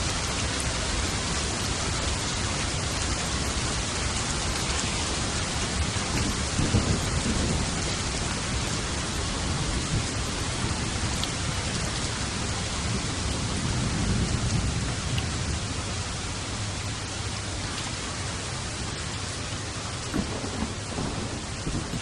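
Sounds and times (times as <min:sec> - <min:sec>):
heavy rain: 0:00.0 - 0:22.0
rolling thunder: 0:05.6 - 0:16.0, 0:20.1 - 0:22.0.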